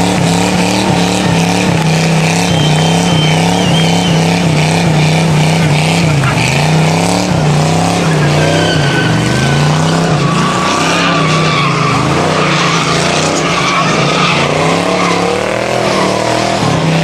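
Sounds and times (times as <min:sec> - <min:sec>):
engine at high revs: 0:00.0 - 0:17.0
tyres squealing: 0:01.2 - 0:17.0.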